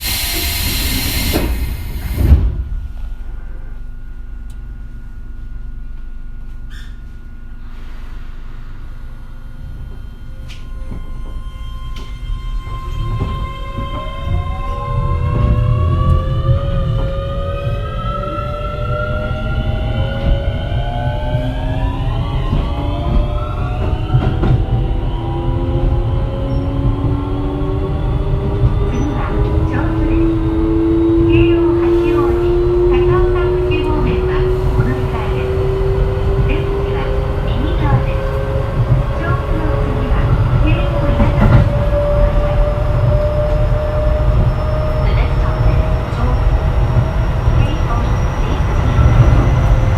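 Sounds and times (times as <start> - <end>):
air hiss of train doors: 0.0 - 2.5
stopped train humming: 0.0 - 49.9
wheels rumbling on rails: 9.4 - 49.9.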